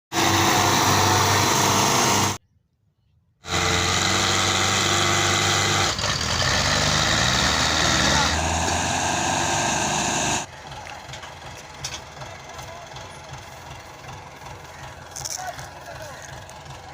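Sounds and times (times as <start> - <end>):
tractor engines running: 0.1 - 2.4, 3.4 - 16.9.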